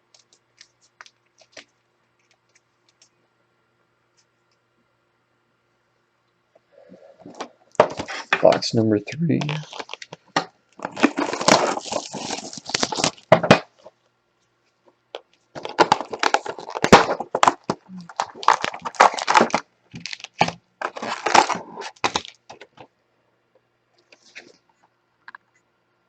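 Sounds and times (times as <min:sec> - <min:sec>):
plastic wrapping crackling and tearing: 0:09.4 - 0:13.9, 0:15.5 - 0:22.9.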